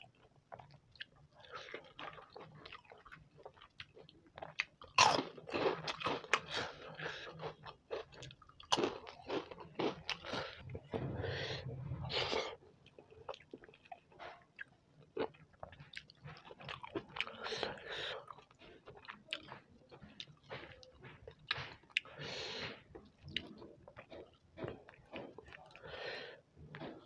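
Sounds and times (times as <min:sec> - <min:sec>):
crunchy food chewing: 0:00.0 - 0:11.1, 0:12.9 - 0:26.0.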